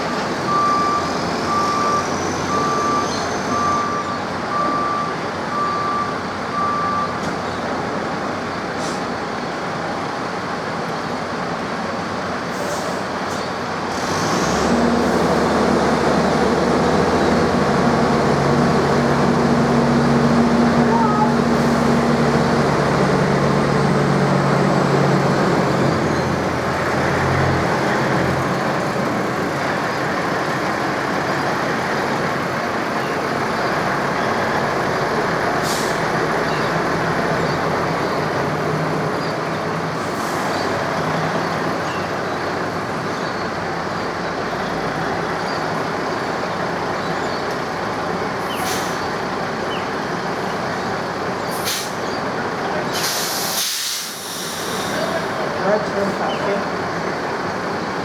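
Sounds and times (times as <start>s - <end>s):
locomotive hissing: 11.4s - 58.0s
short sharp high hisses: 52.9s - 55.2s.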